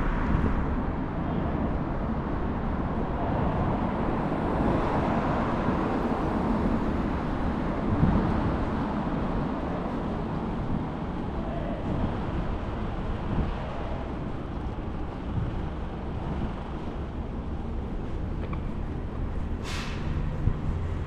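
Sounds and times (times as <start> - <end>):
passing road traffic: 0.0 - 21.0
wind rumbling on microphone: 0.0 - 21.0.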